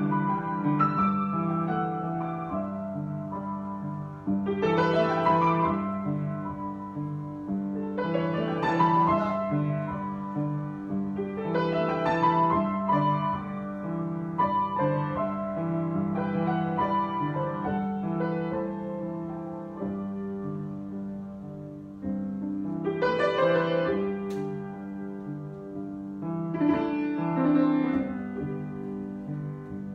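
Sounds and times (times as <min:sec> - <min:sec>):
solo piano: 0:00.0 - 0:29.9.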